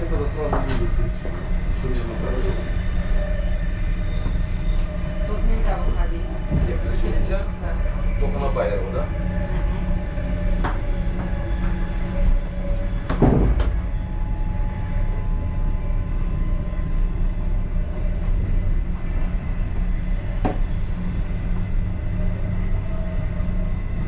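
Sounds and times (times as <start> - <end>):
faint steady whine: 0.0 - 24.0
railway car rumbling on track: 0.0 - 24.0
loud knock: 13.1 - 13.8.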